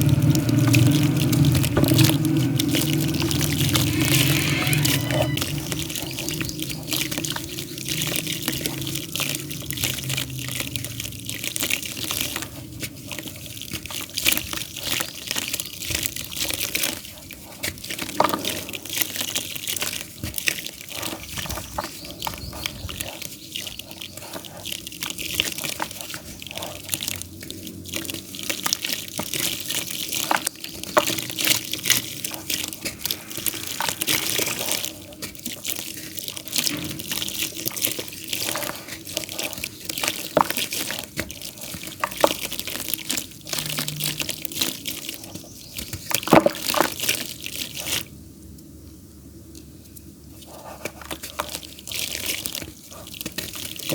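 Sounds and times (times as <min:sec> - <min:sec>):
damp clay crumbling: 0:00.0 - 0:27.1.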